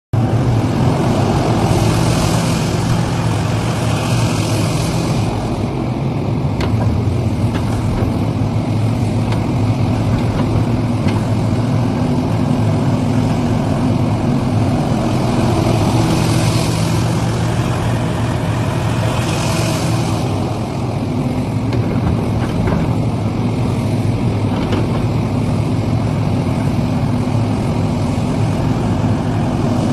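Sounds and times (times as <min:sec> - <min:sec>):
heavy diesel engine running: 0:00.2 - 0:29.9
rushing hiss: 0:01.4 - 0:05.7.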